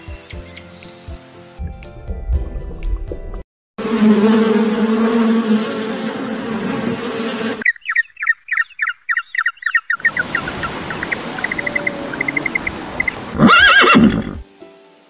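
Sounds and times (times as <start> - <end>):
small bird chirping and trilling: 0.1 - 1.0, 7.6 - 13.2
buzzing insect drone: 3.8 - 7.6
horse whinny: 13.3 - 14.4.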